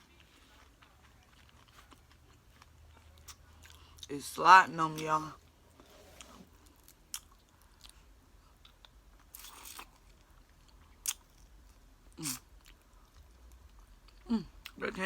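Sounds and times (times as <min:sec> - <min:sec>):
crunching chips and chewing: 0:00.0 - 0:04.1, 0:06.7 - 0:14.8.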